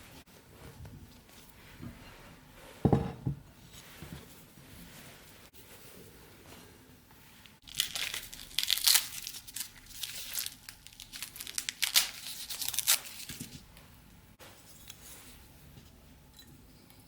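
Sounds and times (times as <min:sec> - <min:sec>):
crinkling and rustling: 0:06.4 - 0:16.0.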